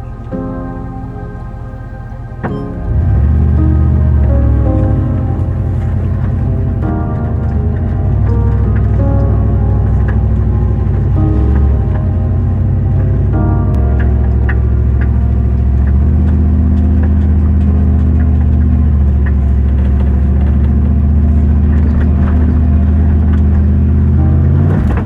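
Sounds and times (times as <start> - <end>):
vehicle engine droning: 0.0 - 25.0.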